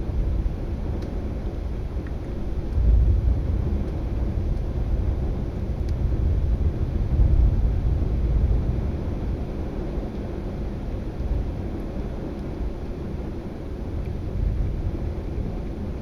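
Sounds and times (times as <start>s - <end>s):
thunder rumbling: 2.7s - 9.6s.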